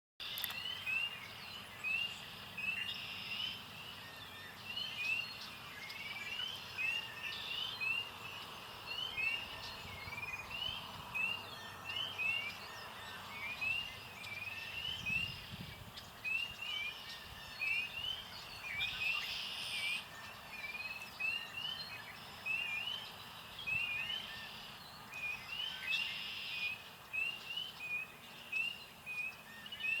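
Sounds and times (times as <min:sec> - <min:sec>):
outdoor background noise: 0:00.2 - 0:30.0
songbird whistling notes: 0:08.9 - 0:30.0.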